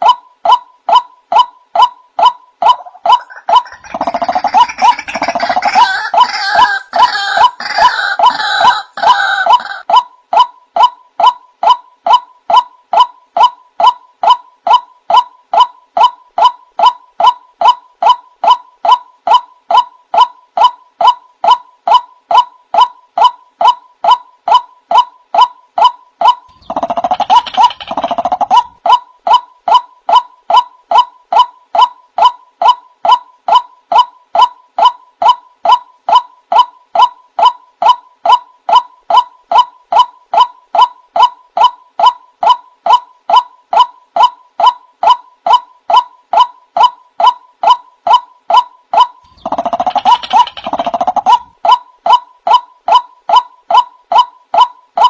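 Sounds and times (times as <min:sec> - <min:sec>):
waterhen wak calls: 0:02.6 - 0:09.8, 0:49.0 - 0:51.8.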